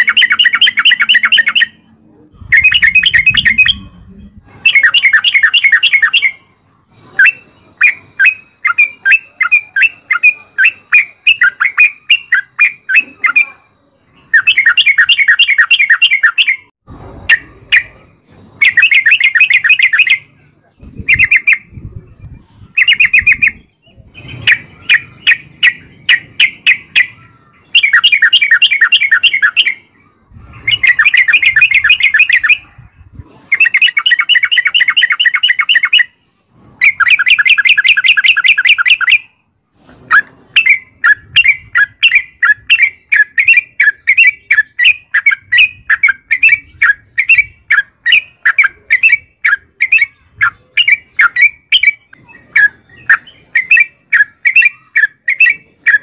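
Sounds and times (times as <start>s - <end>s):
bird calling in rolled chatters: 0.0s - 1.8s, 2.4s - 3.9s, 4.6s - 6.4s, 14.2s - 16.7s, 18.6s - 32.6s, 33.5s - 36.2s, 40.1s - 56.0s.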